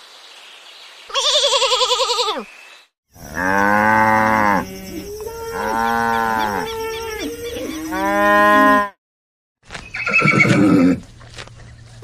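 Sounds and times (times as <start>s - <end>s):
cattle mooing: 3.2s - 9.0s.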